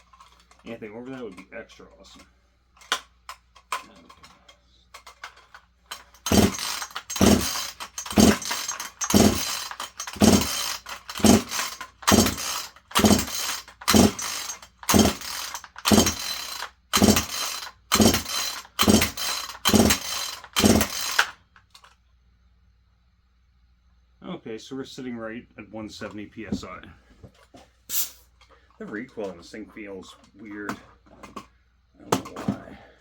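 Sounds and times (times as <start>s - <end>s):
chainsaw starter rope pulls: 5.0s - 21.4s
engine turning over: 5.9s - 21.4s.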